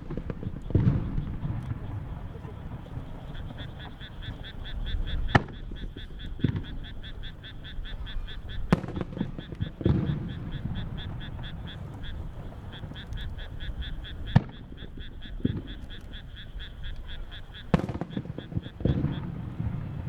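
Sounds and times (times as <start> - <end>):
firework shells bursting: 0.0 - 4.5, 5.3 - 7.1, 8.6 - 16.4, 17.6 - 20.0.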